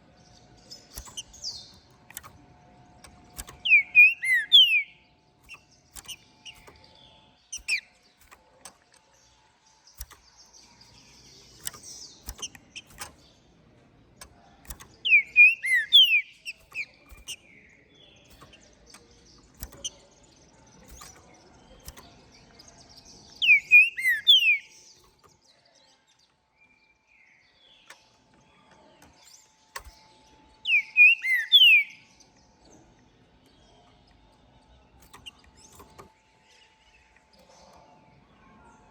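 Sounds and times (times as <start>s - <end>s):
soft bird chirps: 0.0s - 38.9s
faint clicks: 0.5s - 4.6s, 5.4s - 17.6s, 18.2s - 25.6s, 27.8s - 30.8s, 32.3s - 37.9s
bird whistling song: 3.3s - 8.4s, 14.6s - 20.1s, 22.8s - 25.2s, 30.6s - 32.4s.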